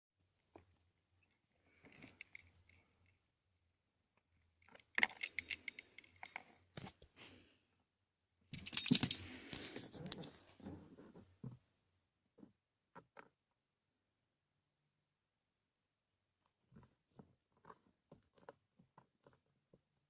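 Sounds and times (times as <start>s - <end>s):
small hard objects clicking: 4.6s - 6.9s.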